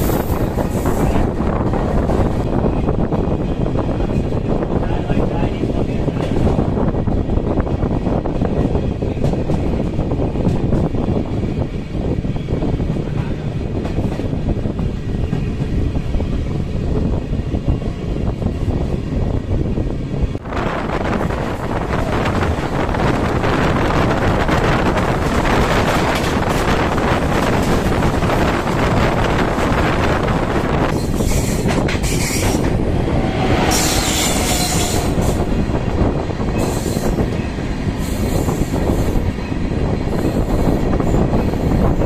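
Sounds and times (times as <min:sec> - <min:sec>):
train wheels rumbling on rails: 0:00.0 - 0:42.0
high-pitched wheel squeal: 0:33.5 - 0:35.4.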